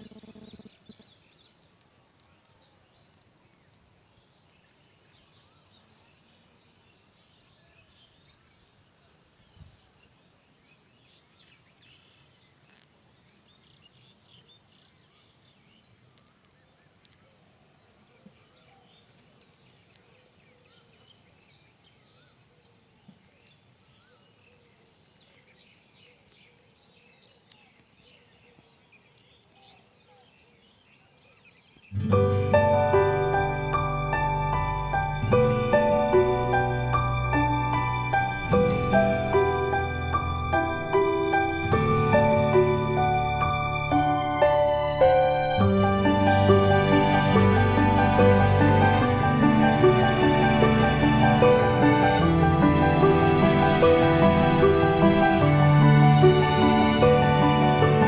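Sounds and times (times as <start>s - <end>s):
faint clicks: 0.0s - 3.4s, 16.1s - 17.3s, 19.1s - 20.1s
small bird chirps: 0.0s - 8.6s
low steady hiss: 0.0s - 58.0s.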